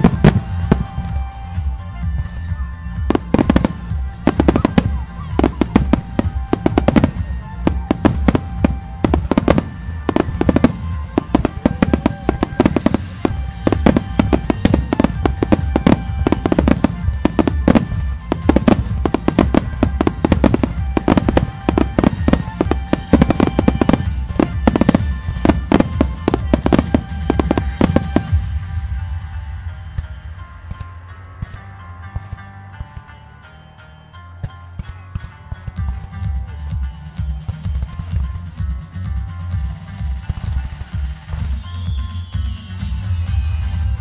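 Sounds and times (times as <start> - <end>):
fireworks bursting: 0.0 - 1.8, 3.0 - 29.0
music: 0.0 - 44.0.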